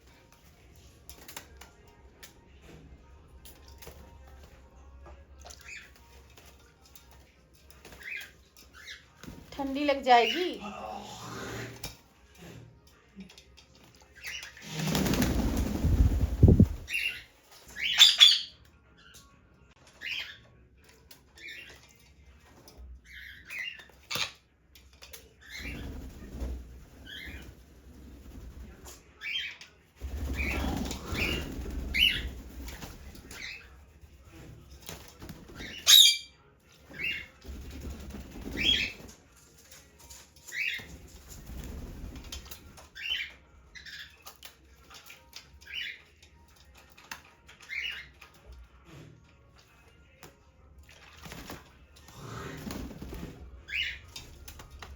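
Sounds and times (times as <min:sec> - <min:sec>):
parrot flapping wings: 0:13.8 - 0:17.7, 0:25.0 - 0:29.0, 0:30.0 - 0:35.9, 0:36.9 - 0:43.1, 0:51.2 - 0:51.8, 0:52.5 - 0:54.9
parrot high chirps: 0:17.8 - 0:18.6, 0:35.8 - 0:36.4.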